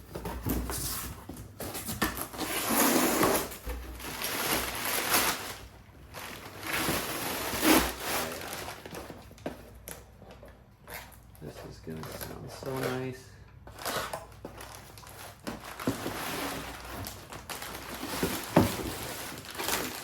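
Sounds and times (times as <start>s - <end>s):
cardboard box rustling and scraping: 0.0s - 9.6s, 13.7s - 20.0s.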